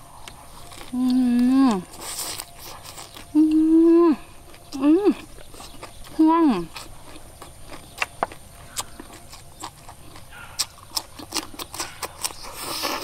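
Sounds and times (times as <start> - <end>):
chewing and mouth smacks: 0.0 - 3.7, 4.4 - 13.0.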